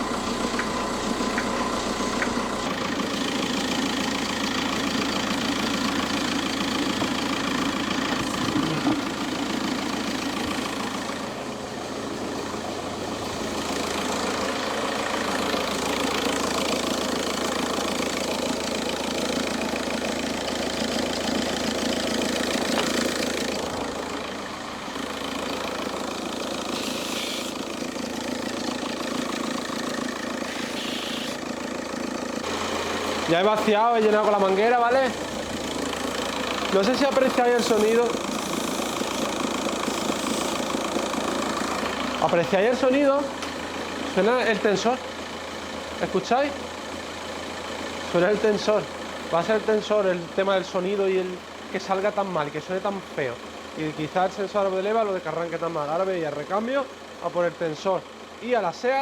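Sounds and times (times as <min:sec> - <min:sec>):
car engine idling: 0:00.0 - 0:59.0
loose belt tensioner noise: 0:21.3 - 0:24.4, 0:25.0 - 0:42.5.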